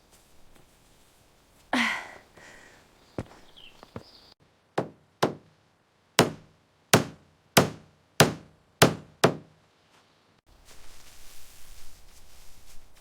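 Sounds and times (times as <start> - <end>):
tool striking wood: 4.8 - 5.5, 6.2 - 9.5.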